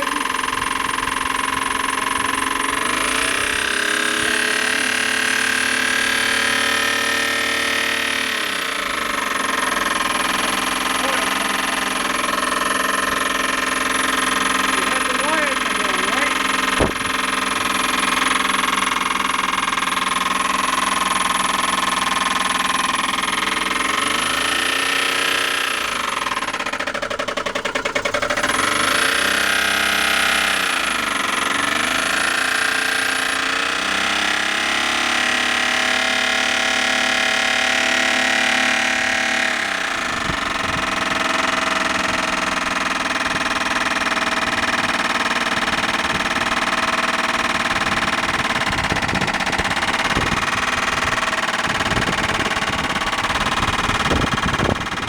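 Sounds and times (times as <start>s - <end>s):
car engine revving: 0.0s - 42.7s.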